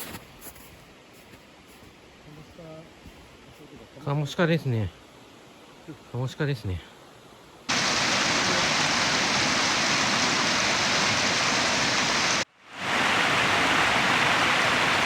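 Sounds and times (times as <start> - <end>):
stream water rushing: 7.7 - 15.0.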